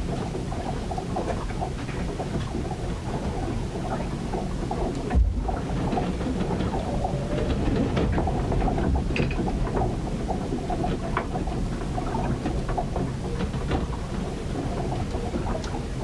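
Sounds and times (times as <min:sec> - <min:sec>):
rumble of wind and water: 0:00.0 - 0:16.0
knocks and creaks: 0:05.1 - 0:10.0.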